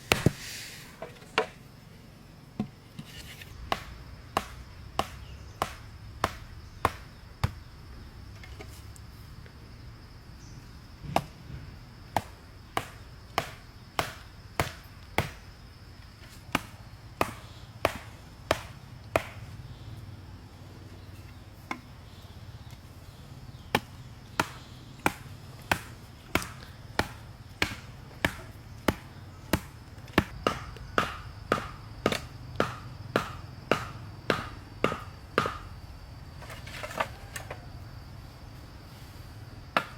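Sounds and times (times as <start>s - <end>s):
hand tool striking wood: 0.0s - 1.5s, 2.6s - 7.6s, 12.2s - 15.4s, 16.5s - 19.4s, 23.7s - 35.7s.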